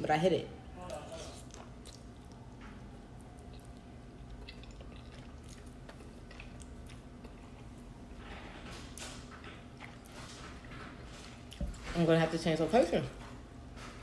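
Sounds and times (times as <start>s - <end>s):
faint steady hum: 0.0s - 14.0s
soft chewing of pasta: 0.8s - 11.9s.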